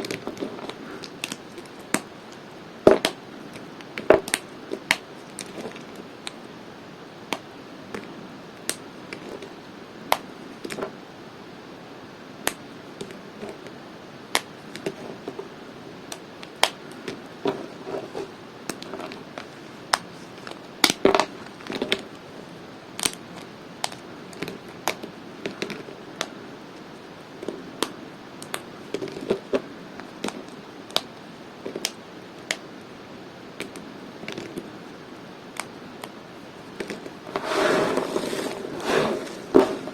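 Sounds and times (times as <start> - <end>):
blade cracking bar soap: 23.0 - 26.4
soap crumbly crunching: 36.6 - 39.9.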